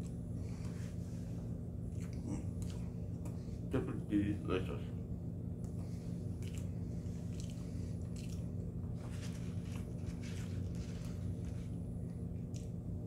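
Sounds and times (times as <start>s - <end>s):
low hum: 0.0s - 13.0s
person chewing with mouth closed: 1.8s - 3.4s, 5.6s - 11.5s.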